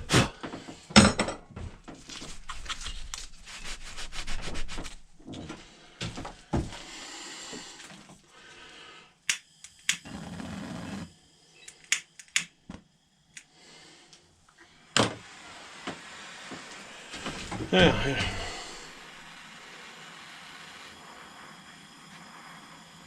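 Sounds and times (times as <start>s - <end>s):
rubbing strokes on wood: 2.2s - 5.0s.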